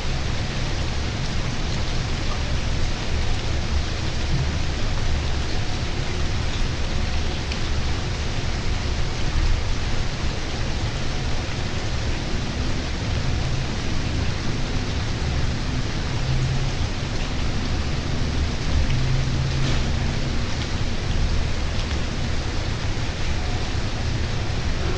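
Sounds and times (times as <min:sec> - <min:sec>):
steady rain falling: 0:00.0 - 0:24.9
low rumble: 0:03.2 - 0:08.9.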